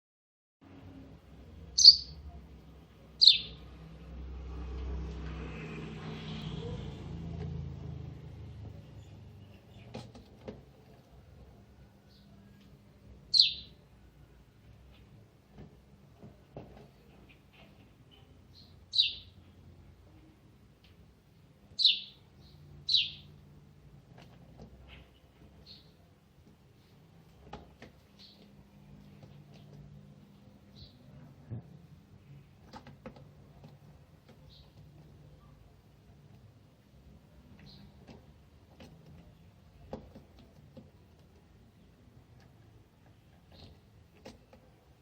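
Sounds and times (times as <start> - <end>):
bird chirping: 1.6 - 2.4, 3.1 - 3.8, 12.0 - 15.2, 16.9 - 20.3, 21.7 - 23.4, 24.8 - 26.1, 28.1 - 28.6, 30.6 - 31.3, 34.3 - 35.6, 37.5 - 38.0
bird sharp high calls: 1.8 - 2.2, 3.2 - 3.6, 13.3 - 13.8, 18.6 - 19.4, 21.8 - 22.2, 22.9 - 23.3.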